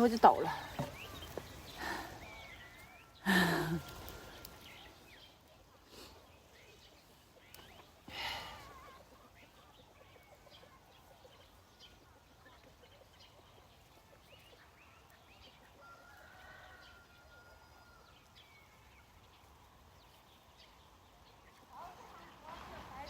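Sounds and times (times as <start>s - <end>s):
distant rooster crowing: 15.8s - 18.4s.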